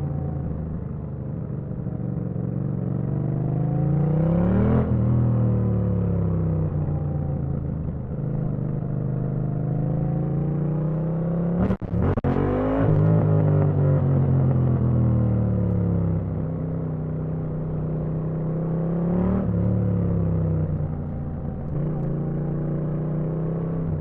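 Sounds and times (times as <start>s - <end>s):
motorcycle engine revving: 8.1s - 16.5s.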